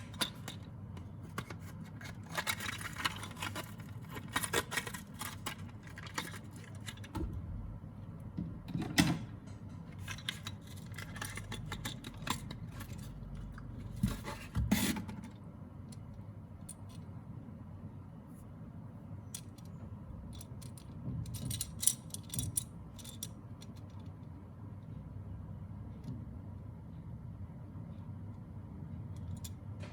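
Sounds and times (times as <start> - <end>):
toy packaging clicks and rustles: 0.0 - 7.2, 10.0 - 14.6.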